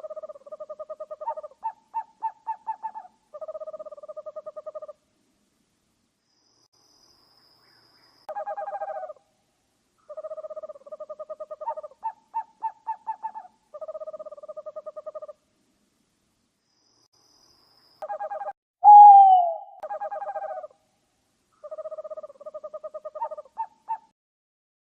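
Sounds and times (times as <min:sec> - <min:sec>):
owl calling: 0:00.0 - 0:05.0, 0:07.6 - 0:09.2, 0:10.0 - 0:15.4, 0:18.0 - 0:20.8, 0:21.6 - 0:24.1.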